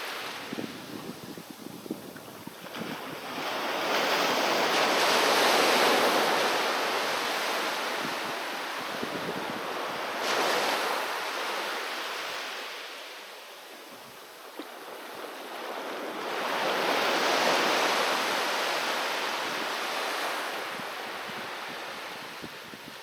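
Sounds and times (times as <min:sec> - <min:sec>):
sea waves breaking on shore: 0:00.0 - 0:23.0.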